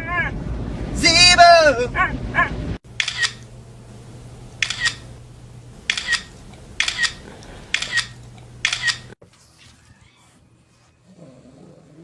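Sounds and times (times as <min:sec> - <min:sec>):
steady low hum: 0:02.8 - 0:09.2
sharp double clicks: 0:03.0 - 0:03.5, 0:04.6 - 0:05.1, 0:05.9 - 0:09.2.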